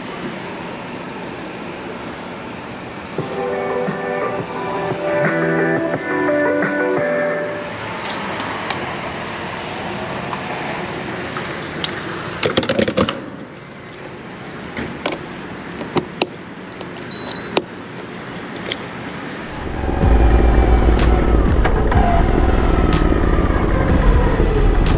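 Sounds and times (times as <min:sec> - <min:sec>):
traffic hiss on wet road: 0:00.0 - 0:03.2, 0:07.5 - 0:12.4.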